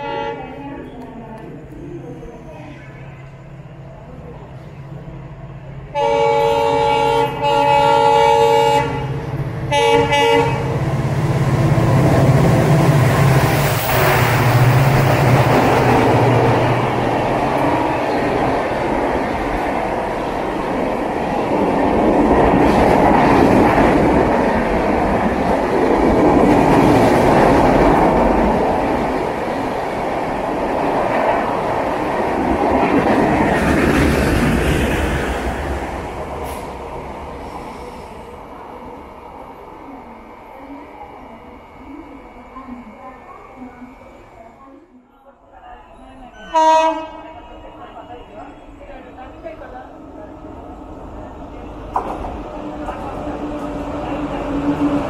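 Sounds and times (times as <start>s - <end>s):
locomotive horn blasts: 0.0s - 0.6s, 6.0s - 10.8s, 46.5s - 47.4s.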